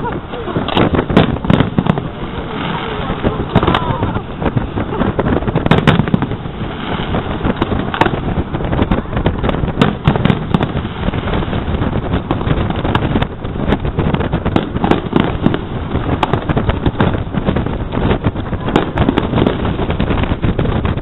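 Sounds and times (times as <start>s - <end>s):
fireworks bangs and crackles: 0.0s - 21.0s
steady low rumble: 0.0s - 21.0s.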